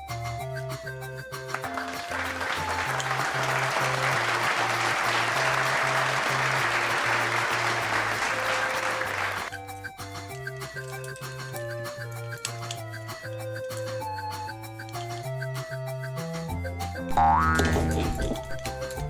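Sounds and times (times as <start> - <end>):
light background music with bass: 0.0 - 19.0
applause: 1.4 - 9.6.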